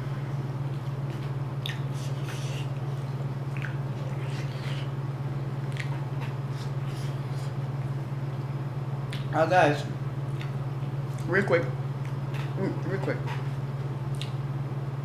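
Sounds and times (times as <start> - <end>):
steady low hum: 0.0 - 15.0
soft mouth smacks: 0.8 - 2.9, 3.5 - 4.9, 5.7 - 7.5, 8.3 - 9.3, 10.3 - 11.3, 14.1 - 14.4
chewing and wet mouth clicks: 1.6 - 1.9, 3.5 - 4.6, 5.6 - 6.7, 9.1 - 9.3, 10.3 - 11.3, 14.1 - 14.4.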